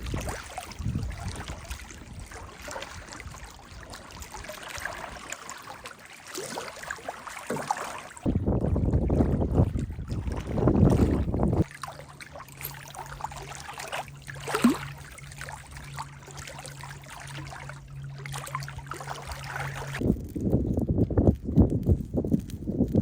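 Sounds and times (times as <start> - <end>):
wind rumble on microphone: 0.0 - 5.3, 8.2 - 11.8, 18.4 - 23.0
paddle swishes and drips: 0.0 - 23.0
steady low hum: 8.0 - 22.8.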